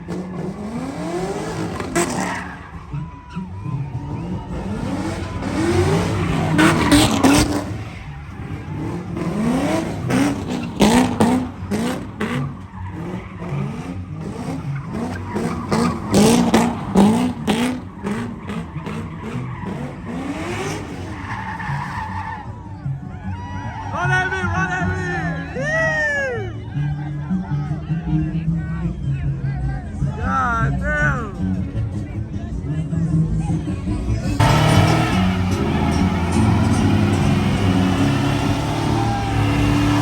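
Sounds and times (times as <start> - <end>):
truck engine revving hard: 0.0 - 22.6, 33.4 - 40.0
tires squealing: 0.0 - 28.2, 33.1 - 40.0.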